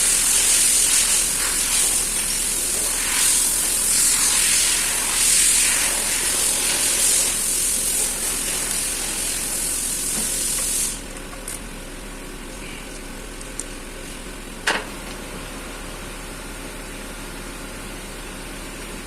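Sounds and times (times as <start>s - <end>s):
pressurised spray hissing: 0.0s - 11.2s.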